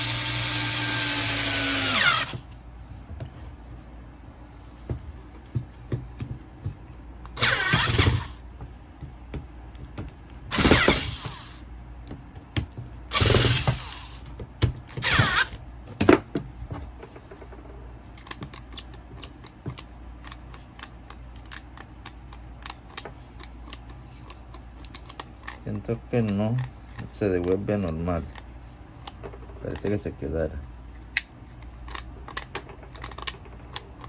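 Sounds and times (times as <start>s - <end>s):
electric angle grinder motor: 0.0s - 2.4s, 7.4s - 8.4s, 10.5s - 11.6s, 13.1s - 14.2s, 15.0s - 15.5s.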